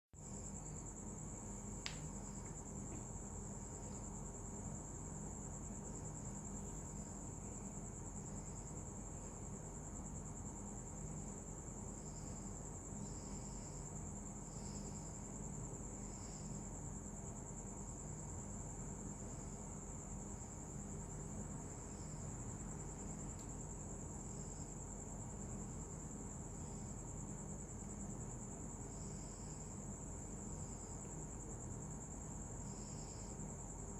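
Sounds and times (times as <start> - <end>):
insects trilling: 0.2 - 33.9.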